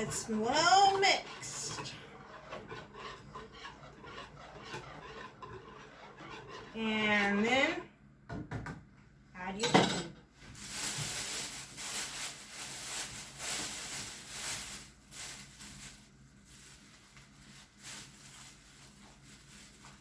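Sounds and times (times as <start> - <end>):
plastic packaging crinkling: 10.5 - 20.0.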